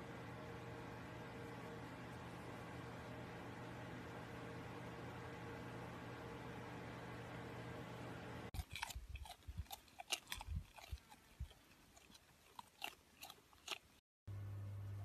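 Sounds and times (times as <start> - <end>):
alpaca chewing: 8.6 - 14.0.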